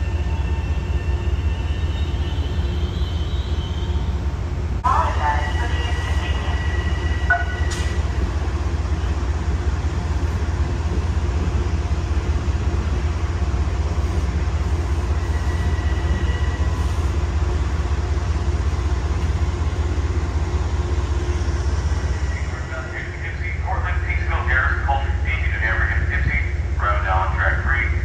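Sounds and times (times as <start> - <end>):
train low rumble: 0.0 - 28.0.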